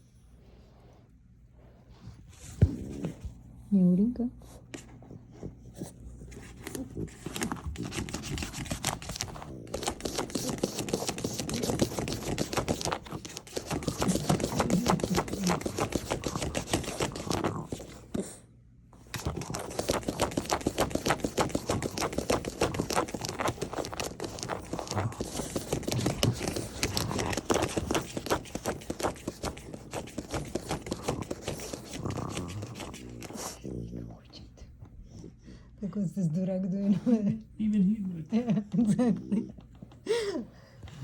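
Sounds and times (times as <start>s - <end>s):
dog scratching and rustling: 5.8s - 18.3s, 19.0s - 33.6s.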